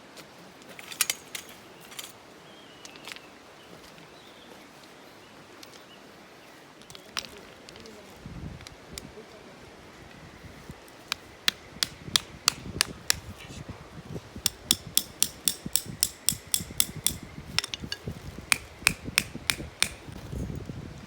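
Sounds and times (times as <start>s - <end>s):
hammer blows on metal: 11.5s - 13.3s, 14.4s - 20.2s.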